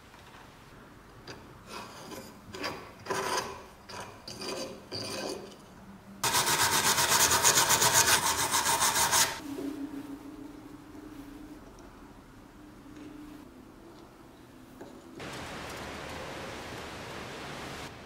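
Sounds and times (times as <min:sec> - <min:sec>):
hand scraping and rubbing: 0:06.2 - 0:10.2
faint steady hum: 0:09.4 - 0:18.0.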